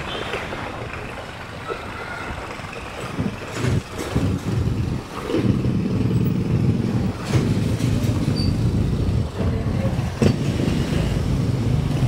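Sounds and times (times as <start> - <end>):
motorcycle engine revving: 3.2 - 12.0.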